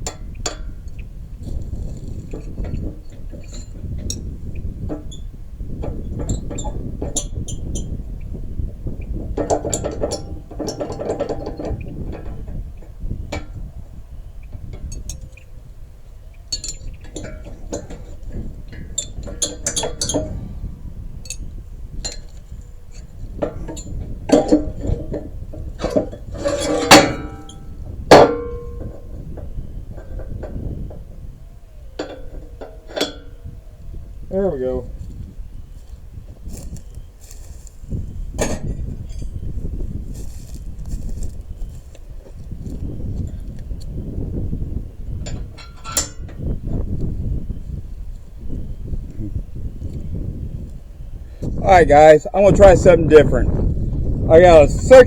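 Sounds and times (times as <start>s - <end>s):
metal-on-metal clanks: 0.0s - 13.7s, 14.5s - 15.6s, 16.5s - 33.8s, 36.5s - 44.0s, 45.1s - 47.3s.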